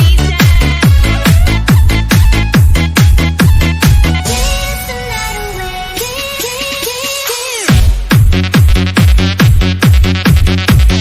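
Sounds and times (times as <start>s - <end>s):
synth melody: 0.9s - 7.0s
booming bass kicks: 7.7s - 11.0s.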